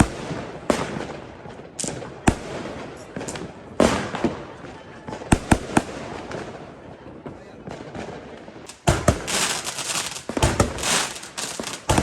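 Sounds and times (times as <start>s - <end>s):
firecrackers crackling: 0.0s - 12.0s
firework bangs: 0.0s - 12.0s
small pops: 8.7s - 12.0s.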